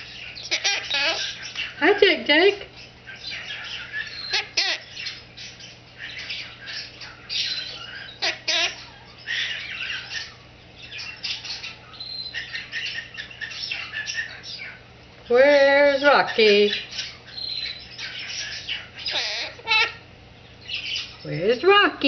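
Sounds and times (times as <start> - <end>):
parrot chattering and squawking: 0.0 - 21.8.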